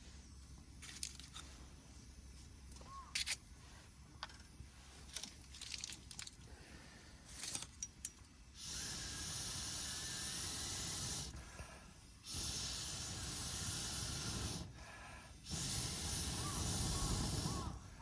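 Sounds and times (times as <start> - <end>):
hissing noise: 8.6 - 18.0.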